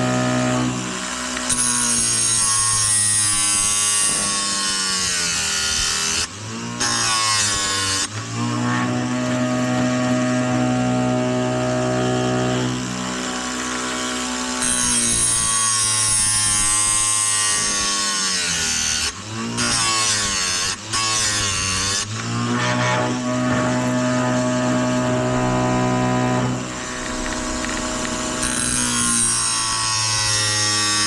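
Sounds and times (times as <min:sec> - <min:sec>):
grinding wheel rasping on chain: 0:19.8 - 0:31.0
sharpener motor humming: 0:21.0 - 0:31.0.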